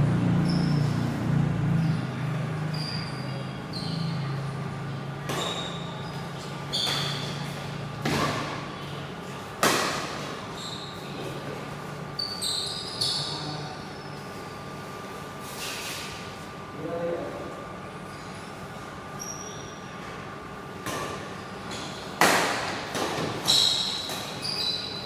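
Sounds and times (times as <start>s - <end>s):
shoes squeaking on court floor: 0.3s - 2.0s, 2.6s - 4.5s, 5.3s - 9.5s, 10.2s - 16.0s, 19.2s - 20.2s, 23.2s - 25.0s
racket hitting shuttlecock: 5.3s - 5.9s, 6.8s - 8.6s, 9.6s - 10.4s, 20.8s - 24.4s.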